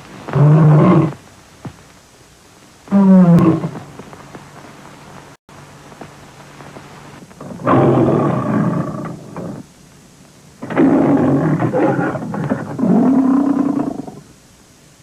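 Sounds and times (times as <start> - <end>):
lion roars: 0.3 - 1.2, 2.9 - 3.8, 7.4 - 9.6, 10.6 - 14.2.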